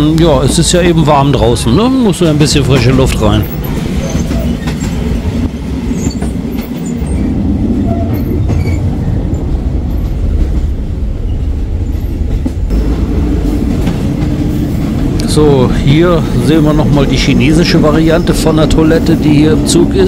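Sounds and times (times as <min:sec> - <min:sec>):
carriages rattling: 0:00.0 - 0:10.7
train wheels rumbling on rails: 0:00.0 - 0:20.0.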